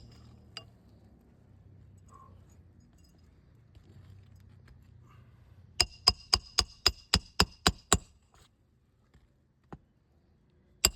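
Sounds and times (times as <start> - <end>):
hammer striking nail: 5.8 - 8.1.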